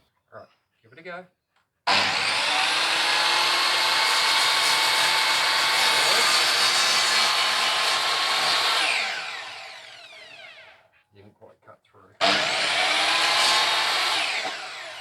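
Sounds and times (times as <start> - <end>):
mitre saw cutting timber: 1.9 - 10.8, 12.2 - 15.0
saw blade winding down whine: 1.9 - 10.8, 12.2 - 15.0.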